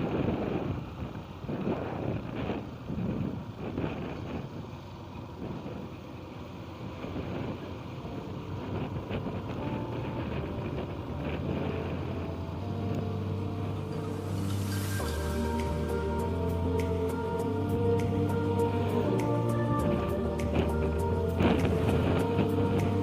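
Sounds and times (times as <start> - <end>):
wind on microphone: 0.0 - 6.0, 6.8 - 23.0
vehicle running: 0.0 - 23.0
background music with held tones: 7.8 - 23.0.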